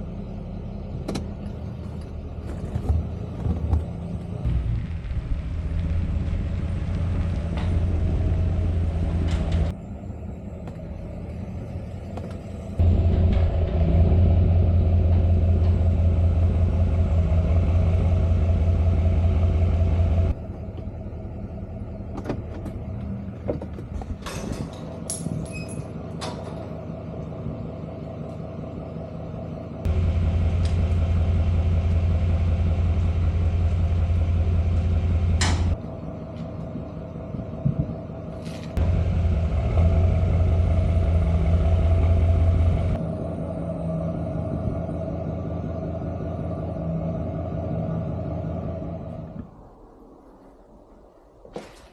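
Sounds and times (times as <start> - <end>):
vehicle engine rumbling: 0.0 - 51.9.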